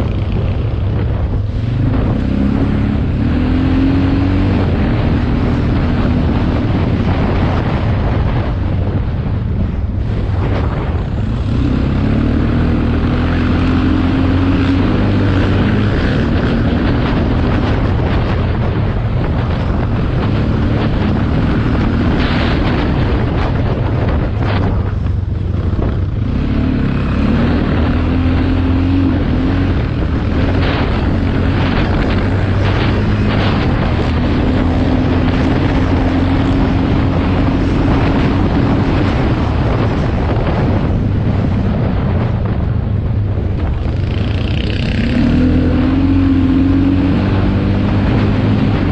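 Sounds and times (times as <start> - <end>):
motocross bike engine revving: 0.0 - 7.4, 11.2 - 18.4, 25.5 - 40.8, 43.9 - 48.9
wind rumble on microphone: 0.0 - 48.9.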